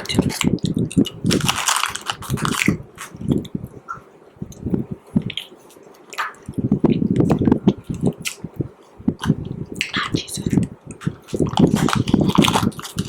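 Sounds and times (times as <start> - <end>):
candy chewing crunches: 0.0 - 3.6, 10.4 - 13.0.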